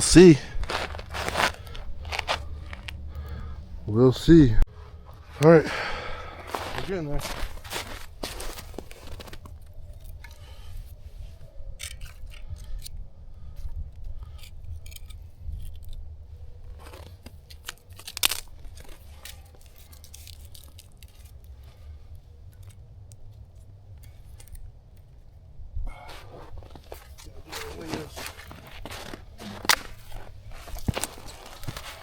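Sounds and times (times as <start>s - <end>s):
low rumble: 0.0s - 9.7s
campfire crackling and snapping: 0.2s - 3.8s, 5.3s - 10.8s, 13.9s - 32.0s
wood being handled: 25.9s - 32.0s.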